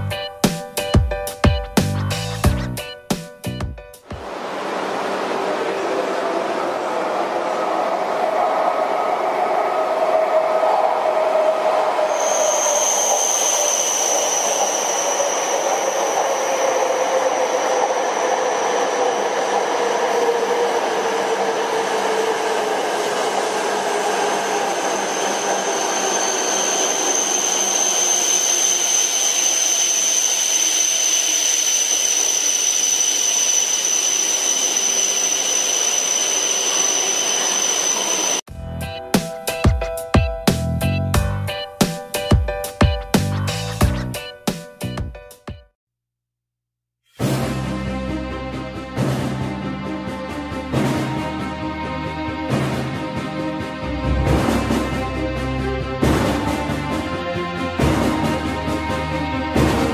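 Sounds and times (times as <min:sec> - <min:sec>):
bullet train passing at speed: 0:02.8 - 0:42.8, 0:47.5 - 0:59.9
thin high squeal: 0:12.0 - 0:22.0, 0:23.0 - 0:38.4.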